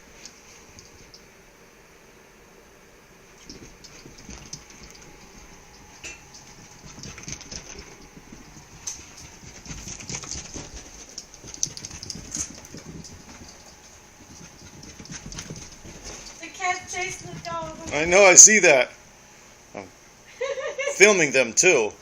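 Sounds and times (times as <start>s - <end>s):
paws and claws tapping: 0.2s - 1.2s, 3.4s - 18.4s.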